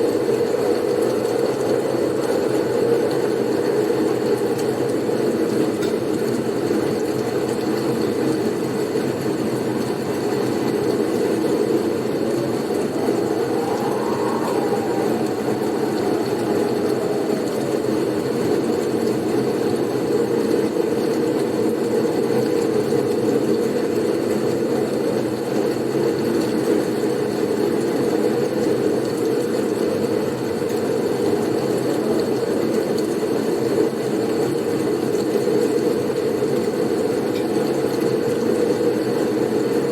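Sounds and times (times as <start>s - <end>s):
blizzard wind rushing: 9.7s - 20.8s
faint thin whistle: 12.7s - 17.7s.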